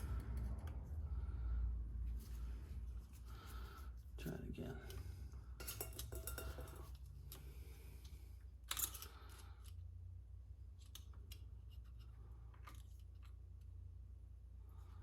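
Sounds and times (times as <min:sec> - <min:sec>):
low steady hum: 0:00.0 - 0:15.0
metal parts clicking: 0:08.6 - 0:09.8, 0:10.7 - 0:13.4.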